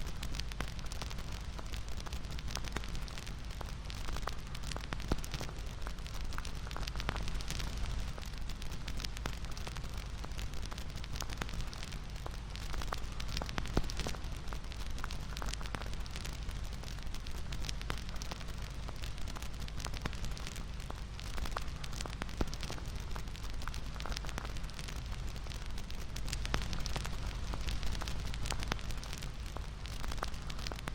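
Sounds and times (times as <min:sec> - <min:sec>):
bonfire crackling and popping: 0:00.0 - 0:30.9.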